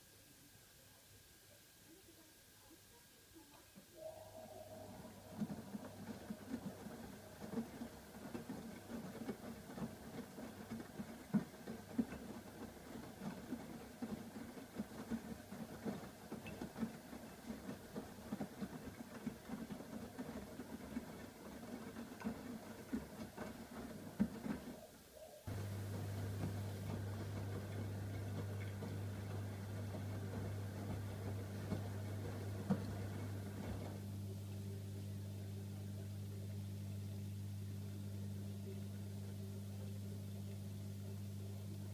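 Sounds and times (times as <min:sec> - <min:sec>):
washing machine motor hum: 0:03.8 - 0:41.9
water noise: 0:04.0 - 0:12.1.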